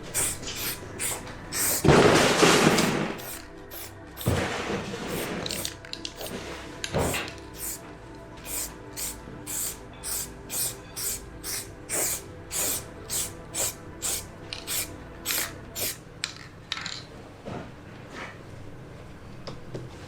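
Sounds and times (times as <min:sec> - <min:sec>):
spray paint hissing from aerosol can: 0:00.0 - 0:04.4, 0:05.0 - 0:06.4, 0:07.0 - 0:07.8, 0:08.4 - 0:16.0.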